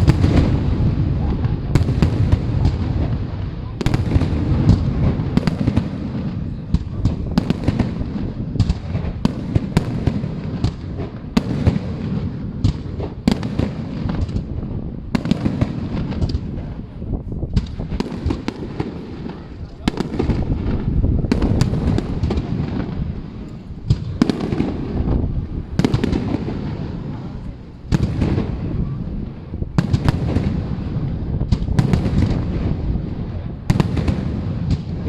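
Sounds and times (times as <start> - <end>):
fireworks rumble: 0.0 - 35.0
sharp firework bangs: 0.0 - 35.0.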